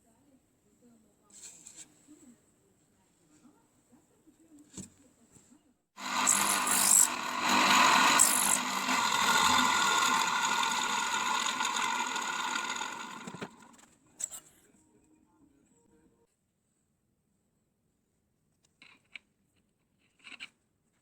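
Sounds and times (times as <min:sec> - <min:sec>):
angle grinder running: 0:06.0 - 0:13.8.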